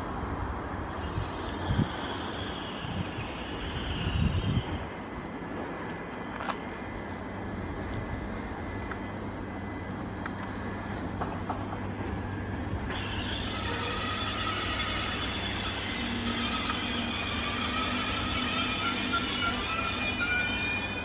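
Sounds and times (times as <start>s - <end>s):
train rumbling: 0.0s - 21.0s
high-pitched squeal: 0.9s - 5.0s, 12.2s - 21.0s.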